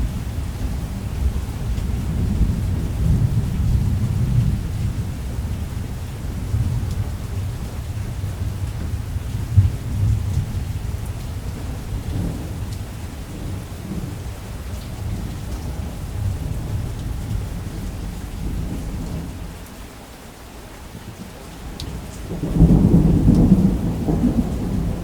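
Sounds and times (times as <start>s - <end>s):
thunder rumbling: 0.0s - 19.5s, 22.2s - 25.0s
steady rain: 0.0s - 25.0s.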